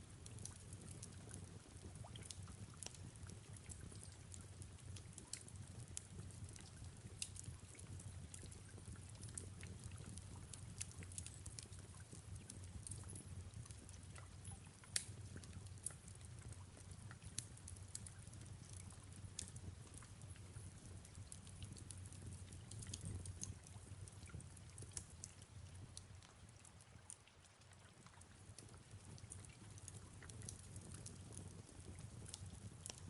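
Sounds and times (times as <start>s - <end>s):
fireplace crackling and popping: 0.0s - 33.0s
soft rain: 0.0s - 33.0s.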